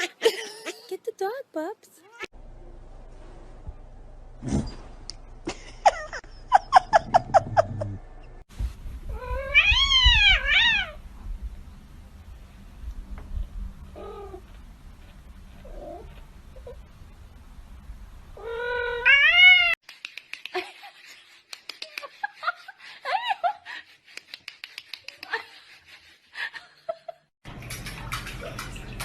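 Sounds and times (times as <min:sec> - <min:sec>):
cat yowling: 0:09.1 - 0:11.0.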